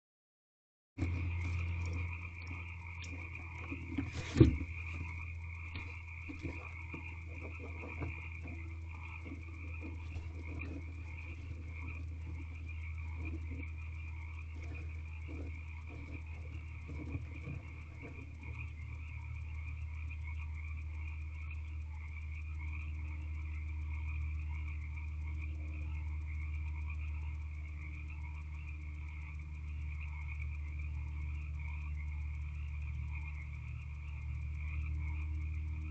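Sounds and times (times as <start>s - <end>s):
frogs trilling: 1.0s - 35.9s
low electrical hum: 1.0s - 35.9s
scratchy rustles: 3.0s - 12.5s.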